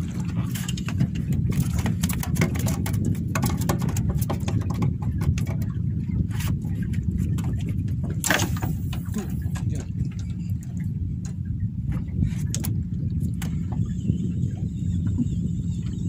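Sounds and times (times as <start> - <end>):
boat engine running: 0.0 - 16.0
water splashing against hull: 0.0 - 16.0.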